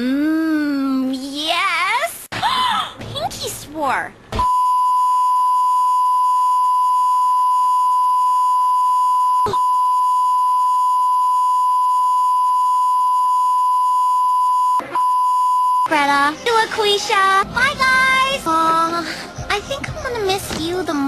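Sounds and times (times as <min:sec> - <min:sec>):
high beep tone: 0:04.4 - 0:15.9.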